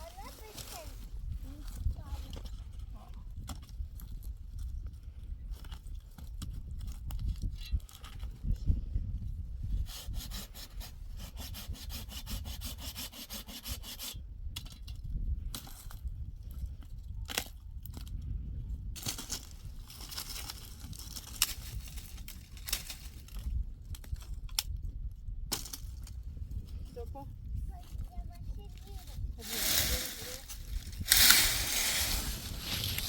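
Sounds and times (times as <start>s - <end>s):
wood being sawn by hand: 9.9s - 14.2s.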